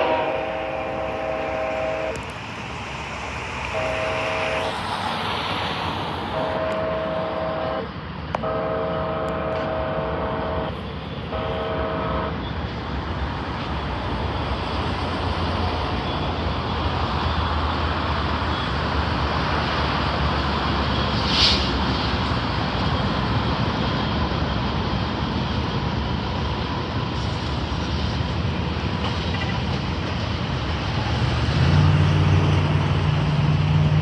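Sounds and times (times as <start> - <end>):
locomotive air horn blasts: 0.0 - 2.3, 3.6 - 4.8, 6.3 - 12.6
freight train rumbling: 0.0 - 34.0.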